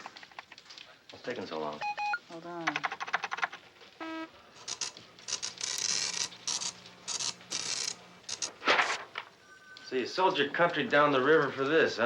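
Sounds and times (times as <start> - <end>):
short electronic beep: 1.8 - 2.2
print head rasping back and forth: 4.6 - 9.0.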